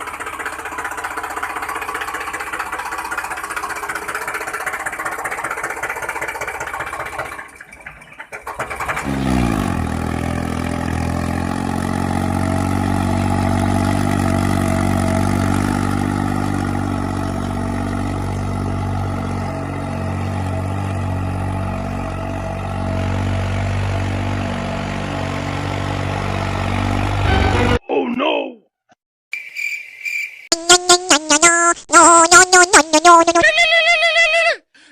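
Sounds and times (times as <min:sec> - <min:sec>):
engine starting and idling: 0:00.0 - 0:16.4.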